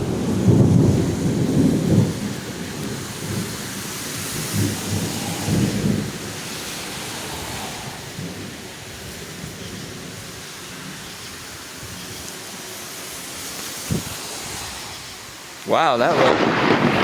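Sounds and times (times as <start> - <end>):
thunder rumble: 0.0 - 9.6, 15.8 - 17.0
steady rain: 0.0 - 17.0.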